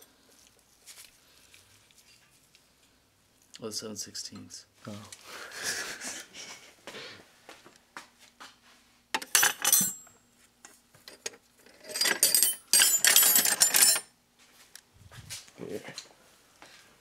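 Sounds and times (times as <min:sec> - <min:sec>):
metal tools clinking: 0:09.2 - 0:10.1, 0:11.1 - 0:14.1.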